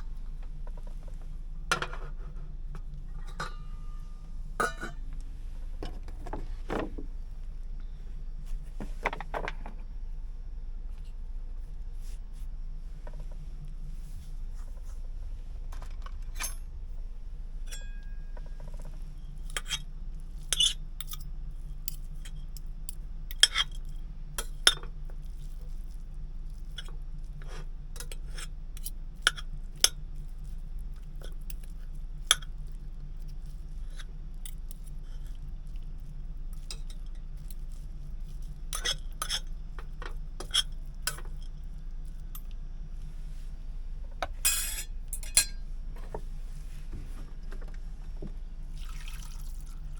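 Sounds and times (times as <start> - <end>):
steady low hum: 0.0 - 49.9
dishes and cutlery clinking: 3.2 - 5.0, 17.7 - 18.8, 44.4 - 45.6.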